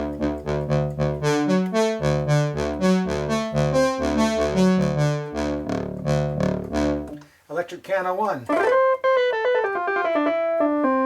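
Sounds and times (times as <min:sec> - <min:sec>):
synth brass chords and bass: 0:00.0 - 0:07.2.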